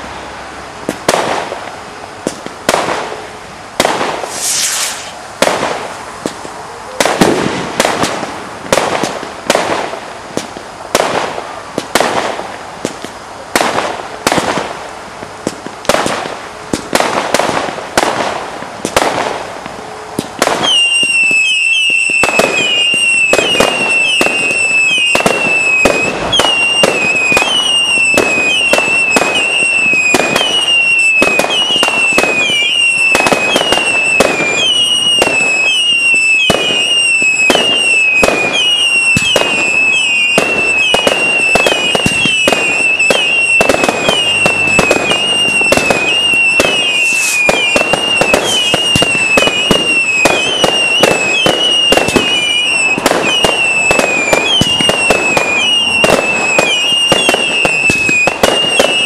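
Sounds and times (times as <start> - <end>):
fireworks bangs with crackling: 0.0 - 59.0
firework popping: 0.8 - 3.2, 3.8 - 59.0
shrill firework whistles: 4.2 - 5.2, 20.5 - 59.0.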